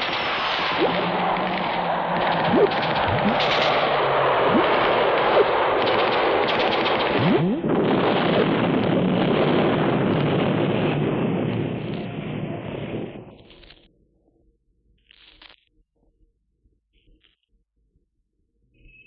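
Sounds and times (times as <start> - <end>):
machine-gun fire and gunshots: 0.0 - 10.9.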